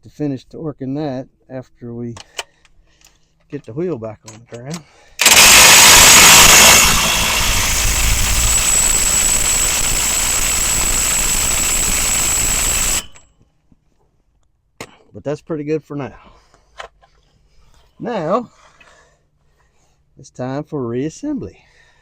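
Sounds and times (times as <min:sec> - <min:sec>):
impact wrench whining: 0:05.2 - 0:13.2.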